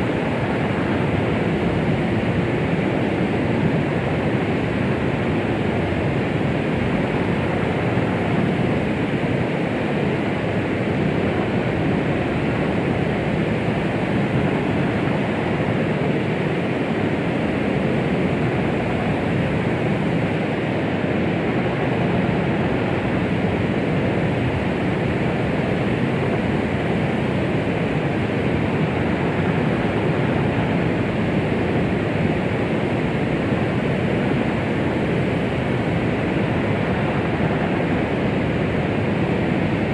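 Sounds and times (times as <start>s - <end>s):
deep muffled white noise: 0.0s - 39.9s.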